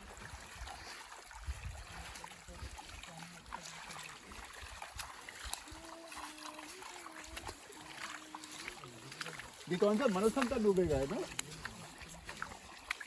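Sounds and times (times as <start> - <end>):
person quietly singing or humming: 5.7 - 9.0.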